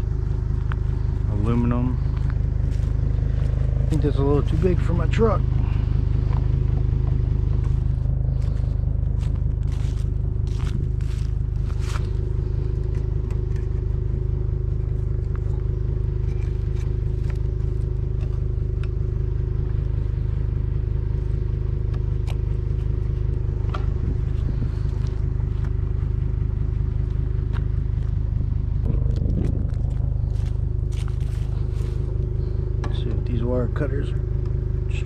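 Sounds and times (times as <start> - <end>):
pickup truck engine running: 0.0 - 35.0.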